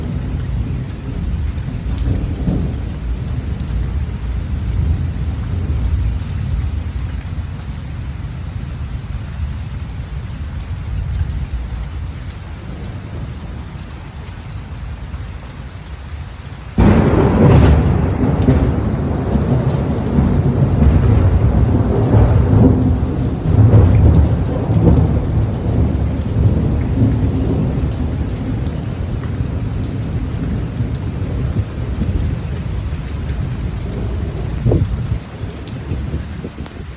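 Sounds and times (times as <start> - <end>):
heavy rain: 0.0 - 36.9
strong storm wind: 16.8 - 36.9.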